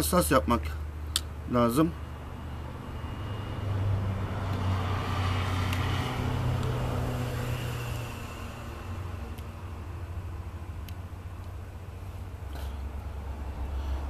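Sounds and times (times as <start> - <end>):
vehicle engine passing by: 1.9 - 10.8.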